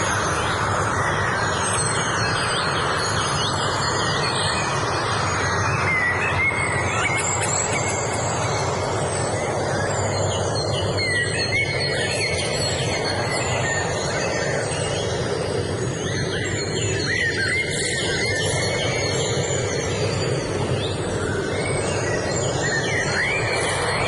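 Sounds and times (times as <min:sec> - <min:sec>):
songbirds chirping and whistling: 0:00.0 - 0:24.0
steady rushing noise: 0:17.6 - 0:24.0.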